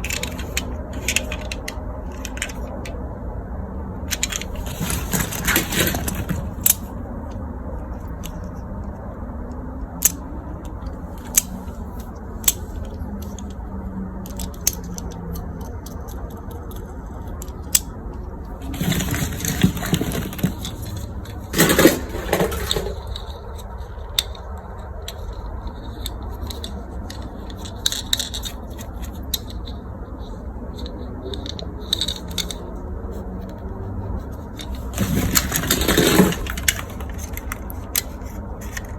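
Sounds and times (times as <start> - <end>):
scraping rustling: 0.0 - 3.0, 4.1 - 7.0, 18.5 - 38.9
clicks of small hard objects: 18.6 - 29.8, 34.5 - 38.9.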